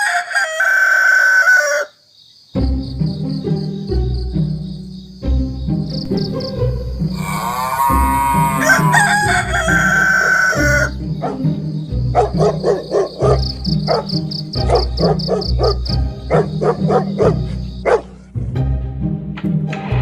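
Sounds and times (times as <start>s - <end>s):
rooster crowing: 0.0s - 2.0s, 7.1s - 11.0s
background music with steady beat: 2.6s - 7.2s, 8.6s - 20.0s.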